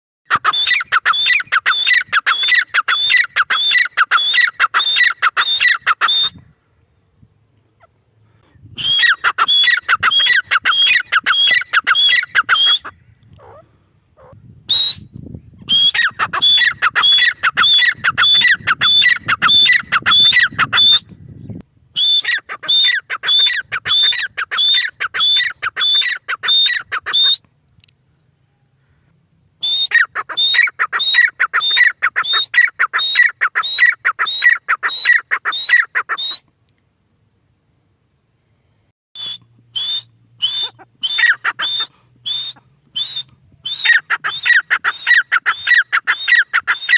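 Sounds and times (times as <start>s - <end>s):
francolin calling: 0.3s - 6.5s, 7.8s - 21.0s, 22.0s - 27.4s, 39.2s - 46.9s.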